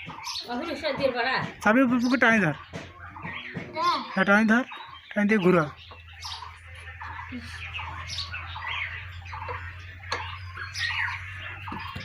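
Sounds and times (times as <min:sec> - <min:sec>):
birds chirping and squawking: 0:00.0 - 0:12.0.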